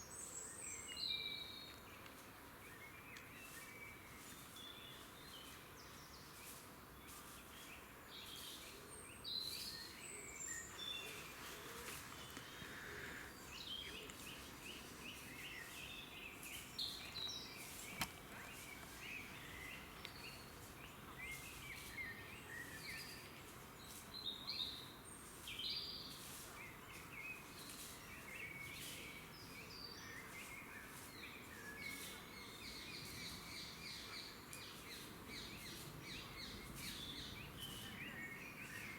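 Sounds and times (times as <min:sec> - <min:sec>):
steady background hiss: 0:02.2 - 0:38.9
birds calling and chirping: 0:08.2 - 0:38.9.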